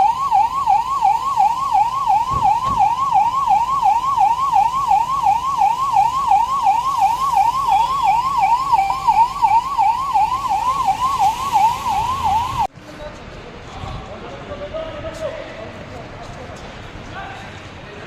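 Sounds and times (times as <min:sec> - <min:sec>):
electronic siren warbling: 0:00.0 - 0:12.7.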